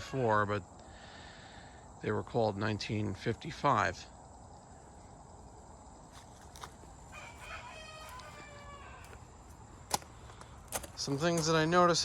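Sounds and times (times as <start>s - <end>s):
rooster crowing faintly: 7.1s - 9.3s.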